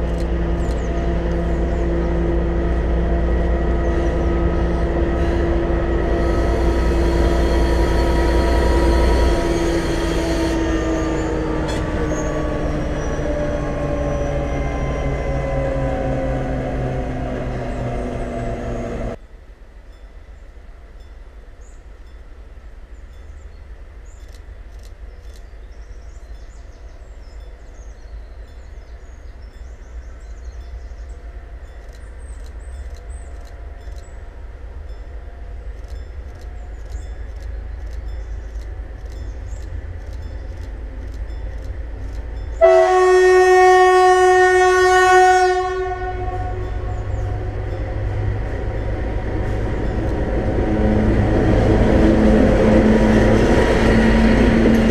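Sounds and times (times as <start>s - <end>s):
locomotive horn blast: 0.0s - 19.2s, 42.6s - 54.9s
diesel locomotive engine rumble: 0.0s - 19.3s, 21.9s - 54.9s.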